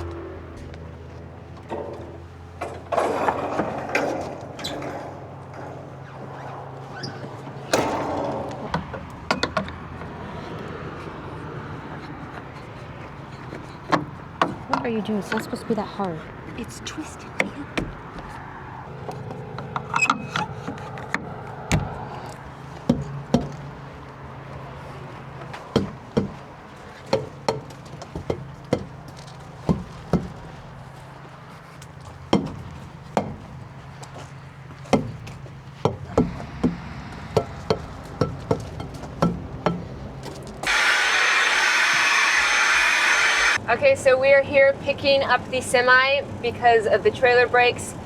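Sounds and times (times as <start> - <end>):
sharp knocks and clicks: 7.8 - 10.1, 25.7 - 26.4, 27.1 - 30.4, 35.8 - 42.4
steady low hum: 35.2 - 43.7
loud rushing noise: 36.1 - 43.6.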